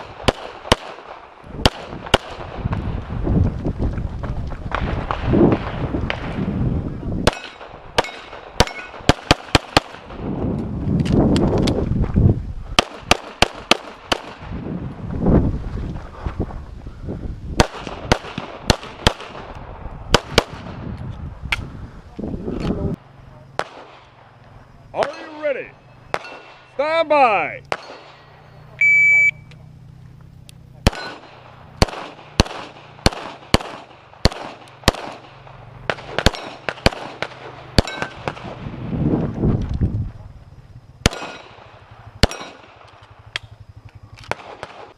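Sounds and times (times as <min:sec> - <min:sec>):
low rumbling noise: 0:00.0 - 0:26.8, 0:27.6 - 0:44.9
handgun shots: 0:30.8 - 0:35.2, 0:42.2 - 0:42.6.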